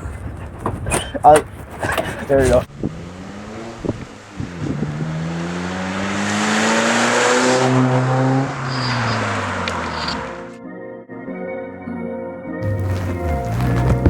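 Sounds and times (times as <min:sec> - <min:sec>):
tire and road noise: 0:00.0 - 0:10.6, 0:12.6 - 0:14.0
car engine accelerating: 0:02.7 - 0:10.6, 0:12.6 - 0:14.0
music: 0:10.5 - 0:14.0.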